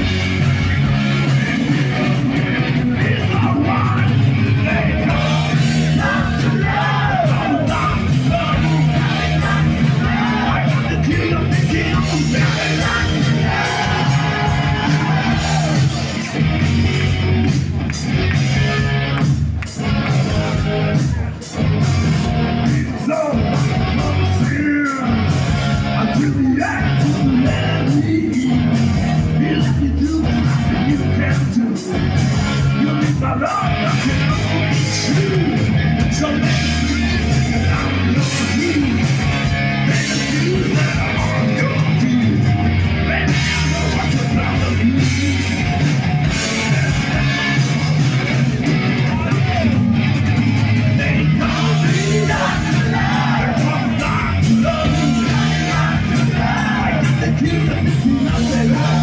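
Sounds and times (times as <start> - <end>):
drum and cymbal beat: 0.0 - 35.6, 36.3 - 59.0
bass guitar: 0.0 - 59.0
distorted electric guitar: 0.0 - 59.0
person singing: 3.0 - 16.1, 25.9 - 47.8, 50.8 - 59.0.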